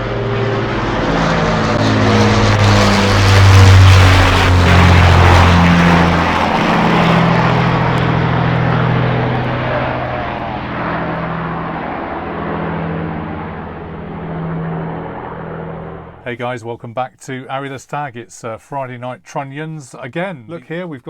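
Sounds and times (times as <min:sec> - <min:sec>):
engine running loudly: 0:00.0 - 0:16.2.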